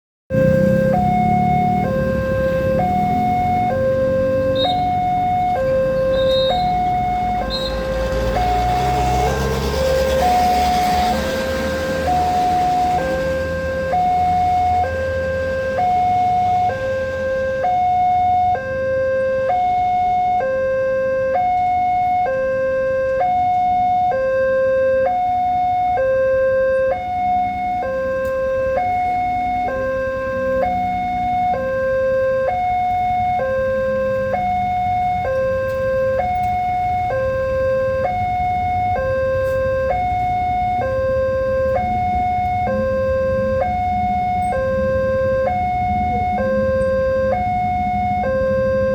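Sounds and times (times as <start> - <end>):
level crossing two-tone alarm: 0.3 - 48.9.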